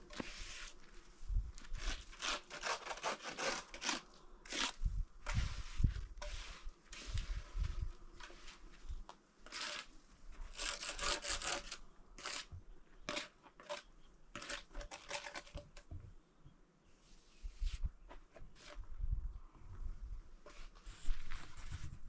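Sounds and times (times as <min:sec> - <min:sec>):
scraping rasping strokes: 0:01.6 - 0:08.7, 0:09.4 - 0:15.8.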